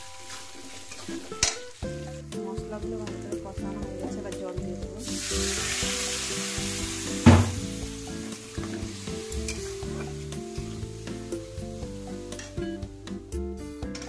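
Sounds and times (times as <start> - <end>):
onions sizzling in hot oil: 0.0 - 13.2
sharp knock: 7.2 - 7.7.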